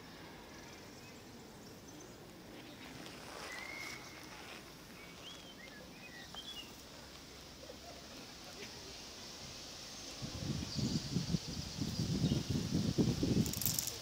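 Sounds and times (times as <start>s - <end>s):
outdoor background noise: 0.0s - 14.0s
soft rustling: 2.3s - 7.3s
bird chirps: 3.4s - 4.4s, 5.0s - 6.8s.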